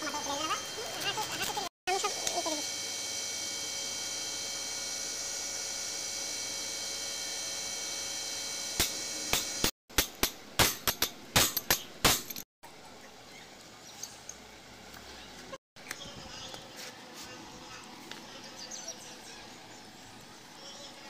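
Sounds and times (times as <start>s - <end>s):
electrical hum: 0.0s - 21.0s
sharp knocks and clinks: 8.8s - 12.4s.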